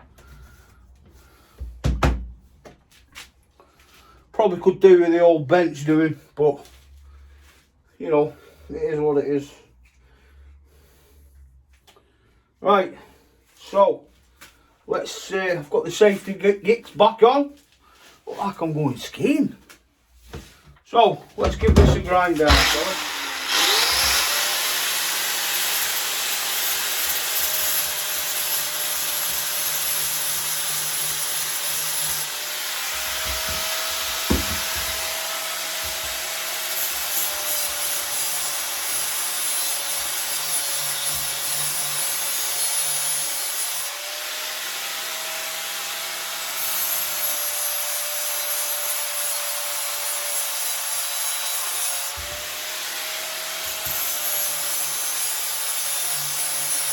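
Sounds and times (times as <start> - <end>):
angle grinder grinding metal: 21.5 - 56.9.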